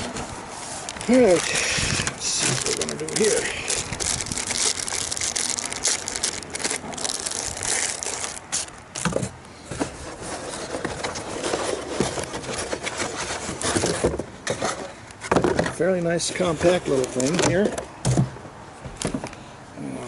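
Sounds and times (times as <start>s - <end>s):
plastic packaging crinkling: 0.8s - 9.2s.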